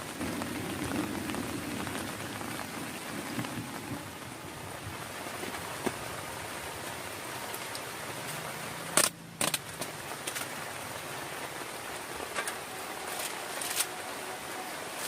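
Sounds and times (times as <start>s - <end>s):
heavy rain hiss: 0.0s - 15.0s.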